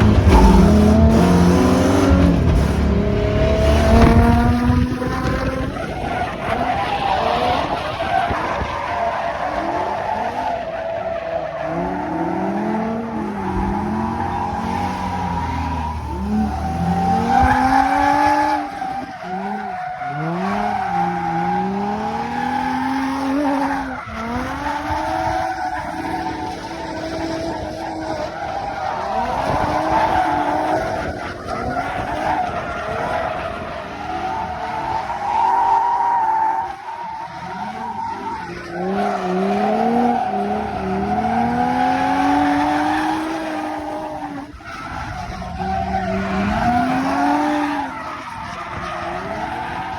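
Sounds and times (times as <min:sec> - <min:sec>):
car engine revving: 0:00.0 - 0:07.8, 0:37.3 - 0:49.9.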